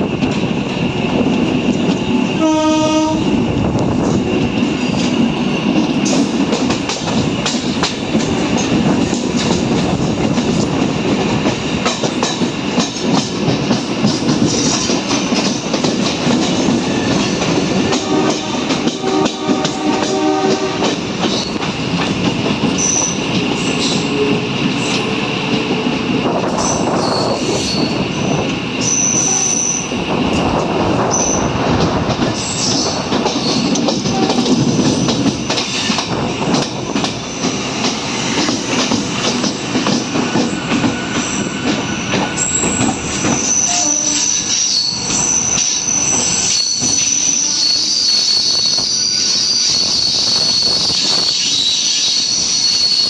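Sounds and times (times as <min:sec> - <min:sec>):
train running rumble: 0:00.0 - 0:53.0
train horn: 0:02.3 - 0:03.4, 0:16.9 - 0:21.1, 0:23.6 - 0:25.8, 0:29.0 - 0:29.8, 0:34.0 - 0:34.6, 0:43.4 - 0:44.7
high wheel squeals: 0:26.6 - 0:30.0, 0:40.5 - 0:53.0.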